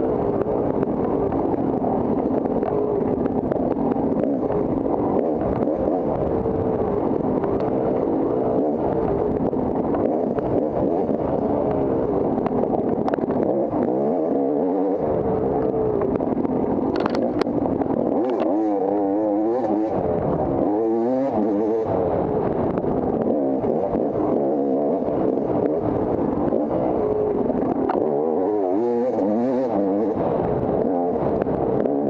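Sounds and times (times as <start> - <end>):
motorcycle engine revving: 0.0 - 32.0
sharp clicks: 16.8 - 17.5.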